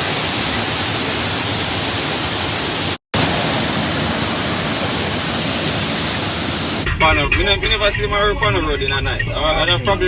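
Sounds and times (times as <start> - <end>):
loud steady rushing noise: 2.6 - 6.9.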